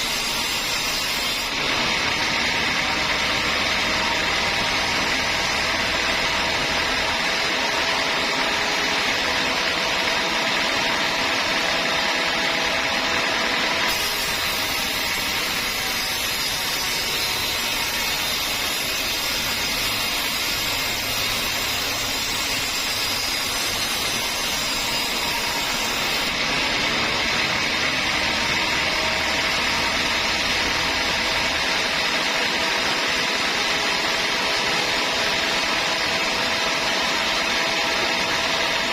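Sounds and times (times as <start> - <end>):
bandsaw running: 0.0 - 38.9
bright hiss: 13.8 - 26.3.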